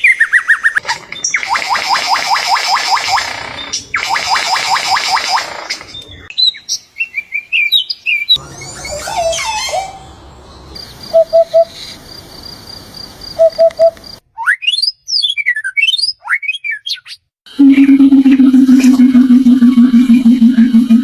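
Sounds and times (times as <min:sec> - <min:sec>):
high bird chirps: 0:00.0 - 0:12.0, 0:13.4 - 0:17.2.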